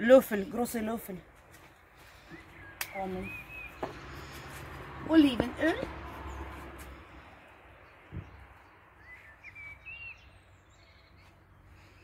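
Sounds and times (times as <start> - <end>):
small bird chirping: 2.2 - 4.5, 7.8 - 12.0.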